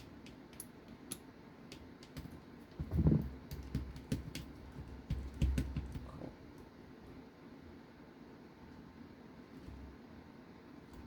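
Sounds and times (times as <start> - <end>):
small parts clicking and tapping: 0.0 - 6.1.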